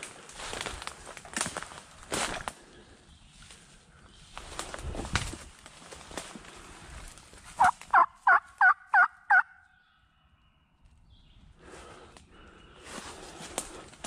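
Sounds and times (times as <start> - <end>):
turkey yelps: 7.6 - 9.6.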